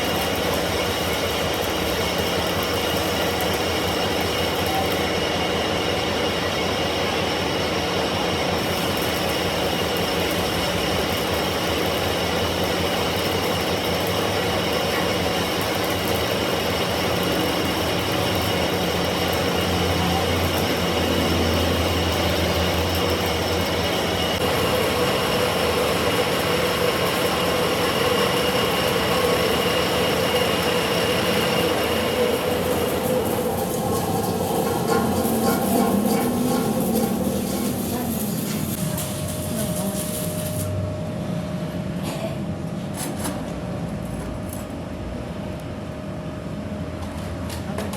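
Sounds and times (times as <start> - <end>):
high-pitched metal cutting whine: 0.0 - 41.8
lathe machine hum: 0.0 - 41.9.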